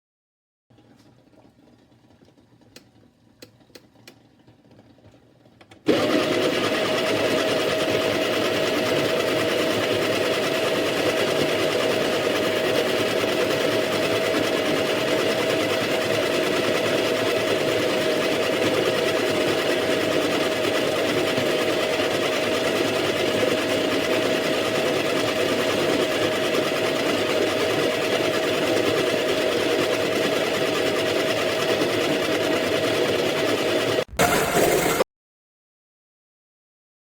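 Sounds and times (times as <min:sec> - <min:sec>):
coffee grinder motor whirring: 0:05.9 - 0:35.0.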